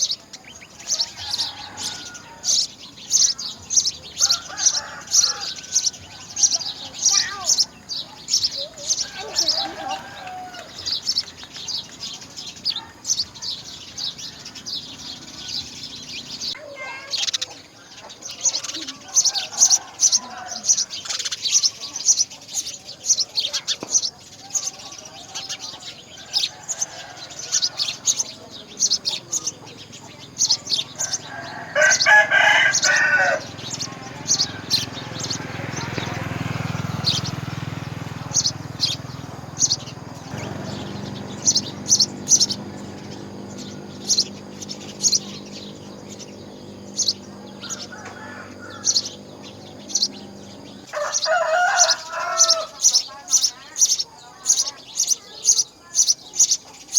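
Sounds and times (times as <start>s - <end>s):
small birds chirping: 0.0s - 56.9s
steady low hum: 29.4s - 50.9s.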